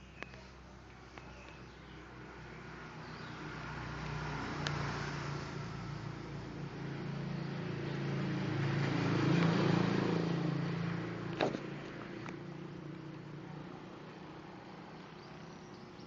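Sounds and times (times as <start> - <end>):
scooter engine running: 5.3 - 16.0.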